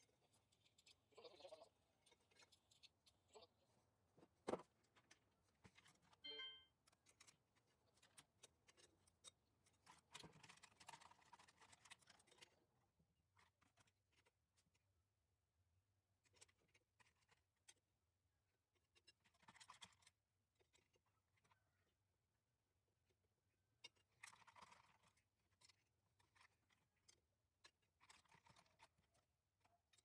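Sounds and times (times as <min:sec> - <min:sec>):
brief ringing tone: 0:06.2 - 0:06.7.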